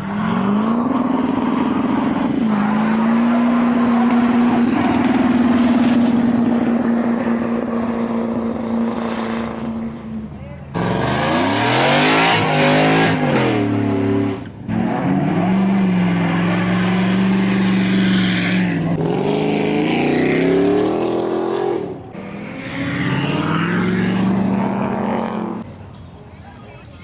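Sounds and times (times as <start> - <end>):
car engine revving hard: 10.8 - 25.6.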